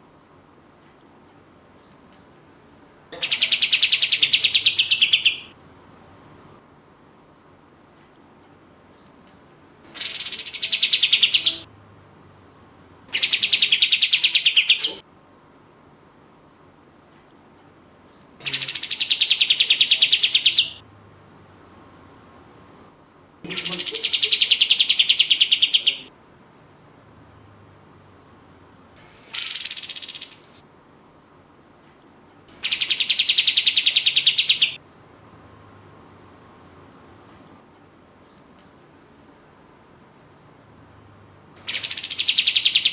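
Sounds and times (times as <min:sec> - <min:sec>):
songbird trilling: 0:03.2 - 0:05.5, 0:10.0 - 0:11.6, 0:13.2 - 0:15.0, 0:18.4 - 0:20.8, 0:23.5 - 0:26.1, 0:29.3 - 0:30.6, 0:32.6 - 0:34.8, 0:41.6 - 0:42.9
songbird rattling trills: 0:29.3 - 0:30.5, 0:32.6 - 0:34.8, 0:41.7 - 0:42.9.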